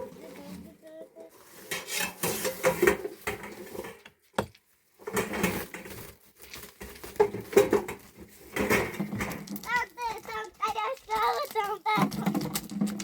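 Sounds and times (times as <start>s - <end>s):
dishes and utensils clattering: 1.5s - 4.0s.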